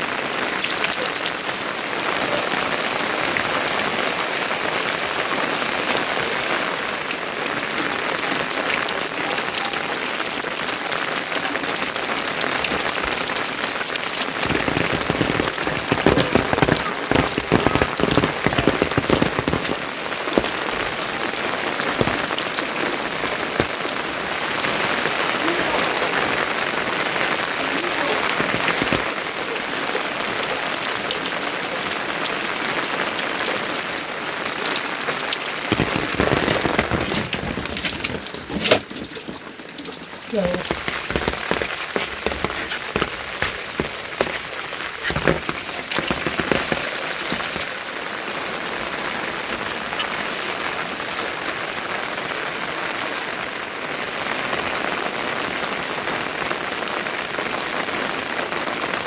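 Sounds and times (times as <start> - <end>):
rain pattering: 0.0 - 59.0
drips and taps: 12.3 - 21.0, 21.8 - 22.6, 34.7 - 47.7.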